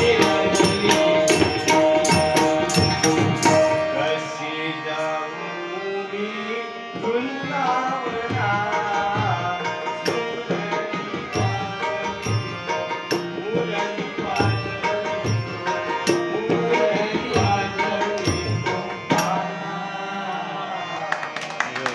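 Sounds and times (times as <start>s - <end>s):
hand drum playing: 0.0s - 3.9s
person singing: 0.0s - 21.9s
sustained accompaniment: 0.0s - 21.9s.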